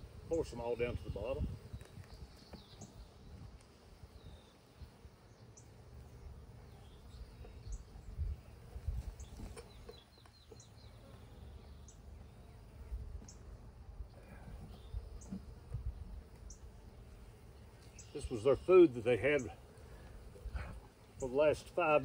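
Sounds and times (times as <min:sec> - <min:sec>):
songbird chirping: 0:00.4 - 0:13.8, 0:14.6 - 0:20.2.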